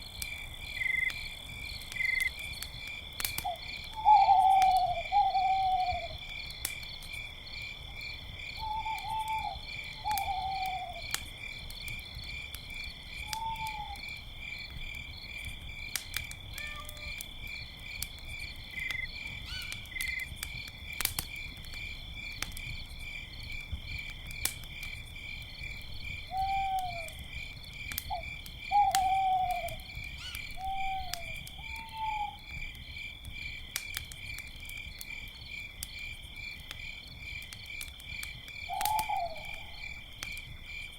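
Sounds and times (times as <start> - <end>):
campfire crackling: 0.0 - 40.9
crickets chirping: 0.0 - 40.9
owls hooting: 4.0 - 6.1, 8.6 - 11.0, 13.3 - 14.0, 26.3 - 27.2, 28.1 - 32.4.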